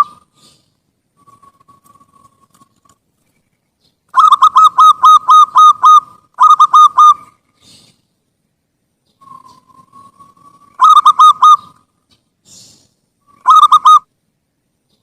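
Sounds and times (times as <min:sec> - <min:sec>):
dove cooing: 0:00.0 - 0:00.6, 0:04.2 - 0:08.0, 0:09.2 - 0:11.9, 0:13.3 - 0:14.1.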